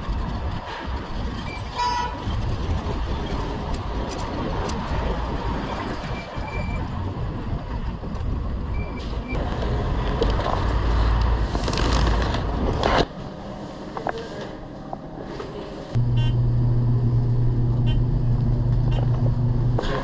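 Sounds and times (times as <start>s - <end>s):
wind rumble on microphone: 0.0s - 13.1s
city street traffic: 0.0s - 20.0s.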